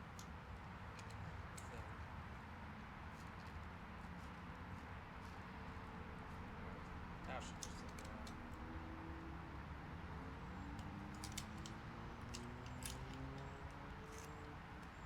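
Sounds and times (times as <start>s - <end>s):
light clicks and taps: 7.5s - 8.6s.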